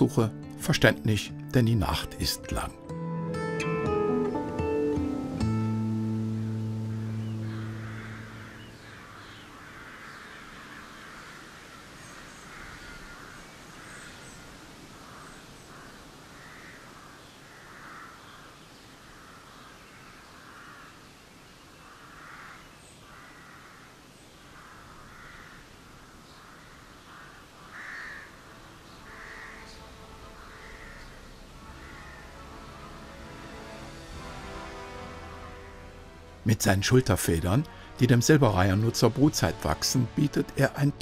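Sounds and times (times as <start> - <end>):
distant harsh bird calls: 5.6 - 36.0.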